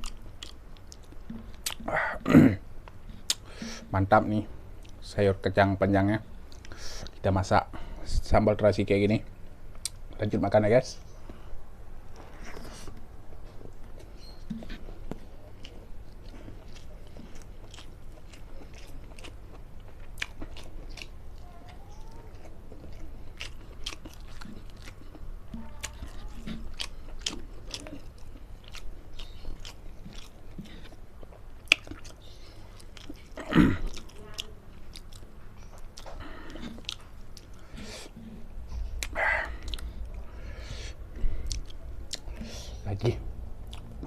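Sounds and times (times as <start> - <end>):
chewing and biting: 0.0 - 1.9, 12.1 - 40.4, 41.1 - 42.8, 43.6 - 44.0
wet mouth clicks: 0.0 - 1.9, 2.9 - 3.5.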